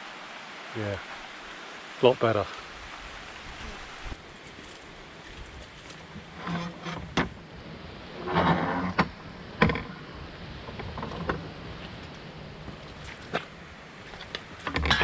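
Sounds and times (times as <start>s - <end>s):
rough creaking rattle: 6.1s - 7.4s, 8.2s - 15.0s
bike clattering over rough ground: 10.6s - 15.0s.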